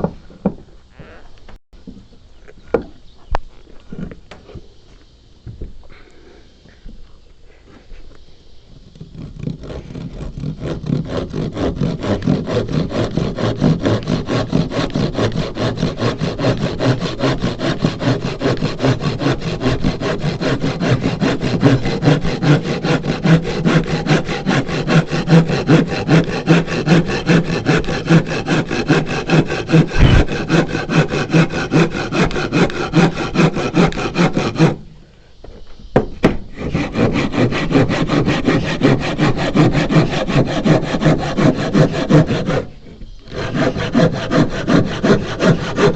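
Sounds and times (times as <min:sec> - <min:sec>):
handsaw cutting wood: 0:08.9 - 0:34.8, 0:36.2 - 0:45.9.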